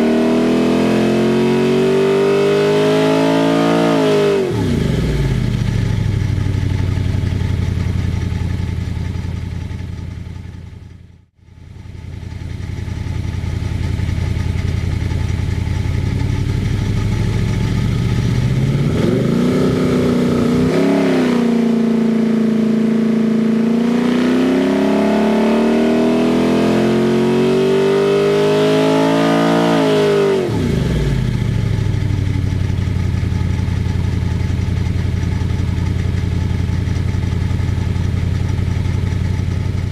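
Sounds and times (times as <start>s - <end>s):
engine revving on a dynamometer: 0.0s - 5.4s, 18.0s - 31.4s.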